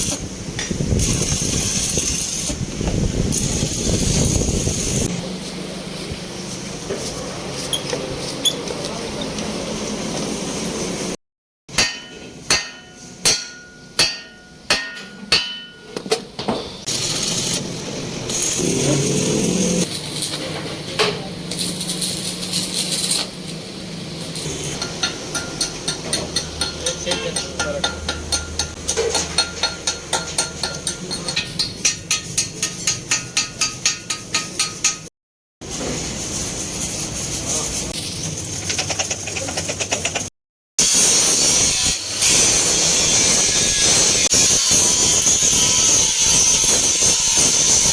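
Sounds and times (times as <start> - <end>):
hammer ringing on steel: 11.7 - 16.0, 24.8 - 35.1.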